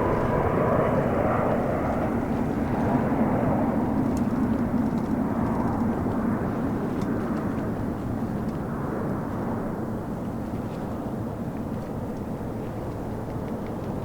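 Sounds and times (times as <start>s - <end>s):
jet engines rushing: 0.0s - 7.9s.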